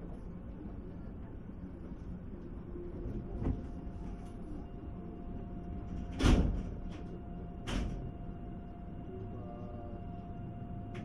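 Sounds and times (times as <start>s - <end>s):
train low hum: 0.0s - 11.0s
faint steady tone: 6.8s - 11.0s.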